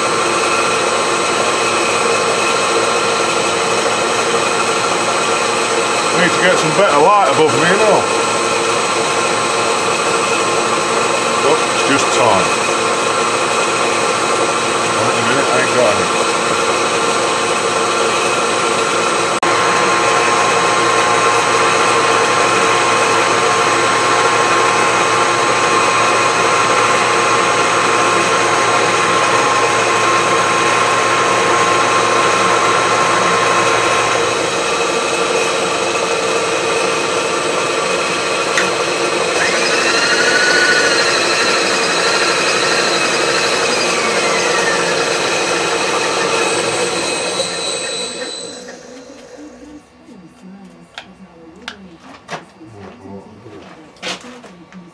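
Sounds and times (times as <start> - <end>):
milling machine cutting steel: 0.0 - 49.5
wavering squeals: 39.4 - 50.1.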